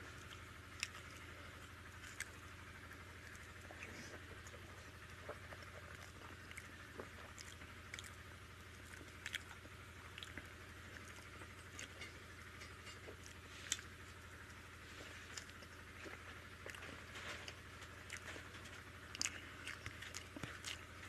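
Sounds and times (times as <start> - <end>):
chewing with wet smacks: 0.0 - 21.0
low steady hum: 0.0 - 21.0.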